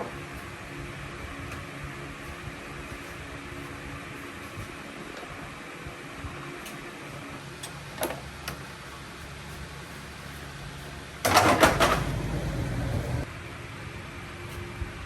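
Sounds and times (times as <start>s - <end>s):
clatter of hard parts: 11.2s - 12.3s.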